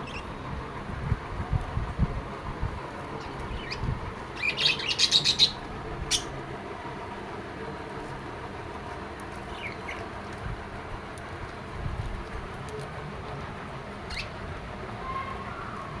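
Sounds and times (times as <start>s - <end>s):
lovebirds chirping: 0.0s - 0.4s, 3.1s - 6.4s, 9.3s - 10.2s, 14.0s - 14.4s.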